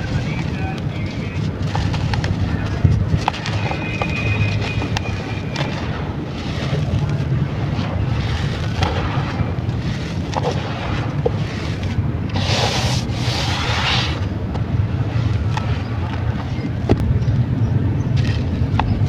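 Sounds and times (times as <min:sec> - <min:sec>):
small clicks and crackles: 0:00.0 - 0:12.0, 0:18.1 - 0:19.0
dry clay crumbling and crunching: 0:00.0 - 0:13.7
steady low rumble: 0:00.0 - 0:19.0.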